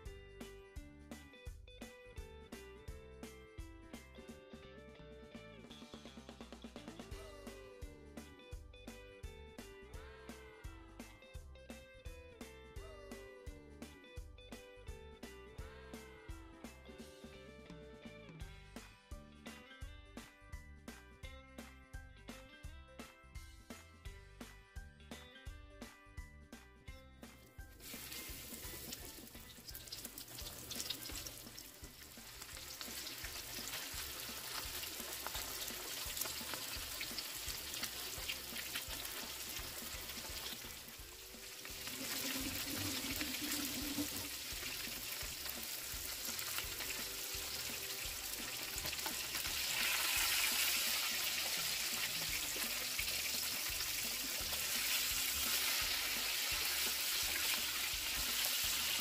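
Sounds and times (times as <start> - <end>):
meat frying in oil sizzling: 27.7 - 59.0.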